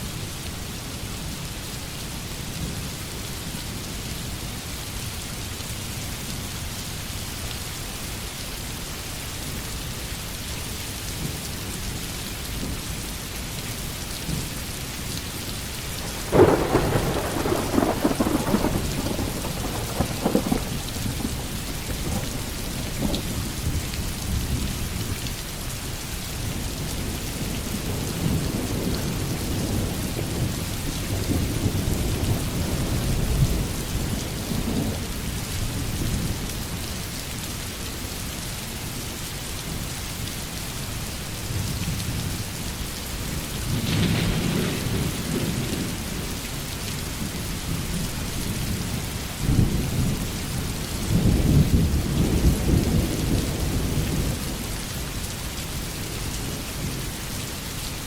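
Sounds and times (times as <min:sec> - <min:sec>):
heavy rain falling: 0:00.0 - 0:58.0
thunder rumbling: 0:16.0 - 0:24.4, 0:43.6 - 0:46.3.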